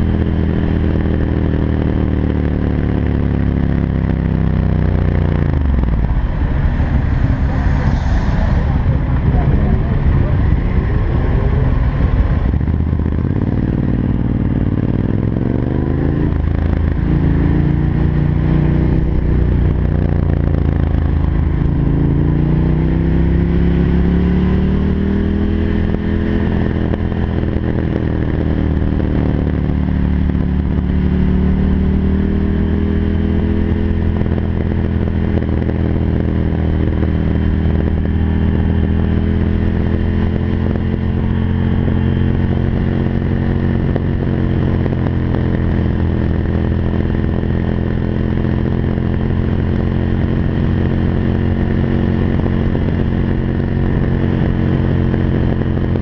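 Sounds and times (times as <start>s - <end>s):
loud motorcycle engine accelerating: 0.0s - 56.0s.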